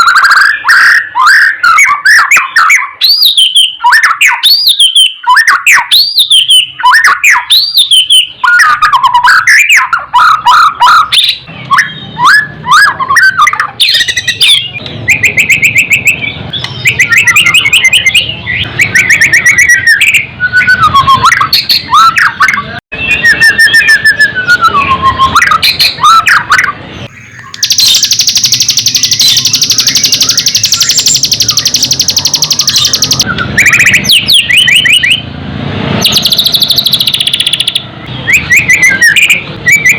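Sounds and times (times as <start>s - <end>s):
bird singing whistled song: 0.0s - 35.2s, 36.0s - 39.9s.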